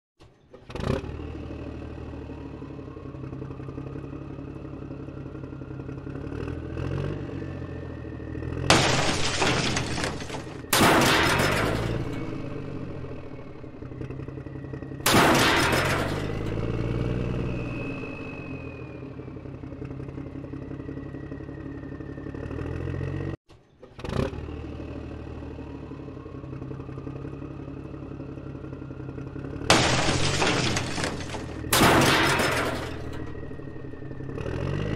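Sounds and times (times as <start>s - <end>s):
crash and shatter smashes: 8.7s - 14.3s, 15.0s - 17.9s, 29.7s - 34.5s.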